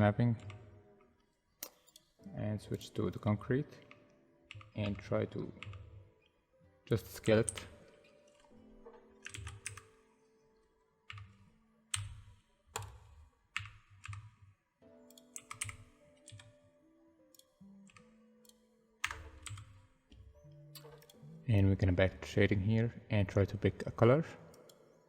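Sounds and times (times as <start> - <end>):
keyboard and mouse clicks: 0.0 - 0.7, 1.6 - 2.2, 3.8 - 6.3, 6.9 - 10.0, 11.0 - 14.4, 15.0 - 16.6, 17.2 - 21.4.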